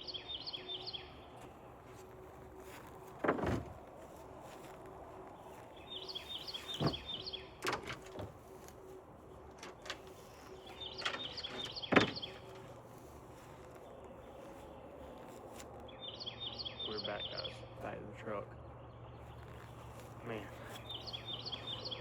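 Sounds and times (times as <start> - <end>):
songbird singing: 0.0 - 22.0
dull knocks: 6.7 - 8.3, 11.0 - 12.5.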